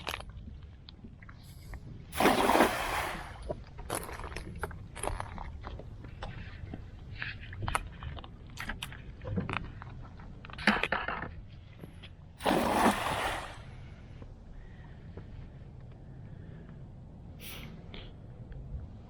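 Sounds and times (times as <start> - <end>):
loud water splash: 2.2 - 3.4, 12.4 - 13.7
water sloshing: 2.2 - 5.5, 12.4 - 14.0.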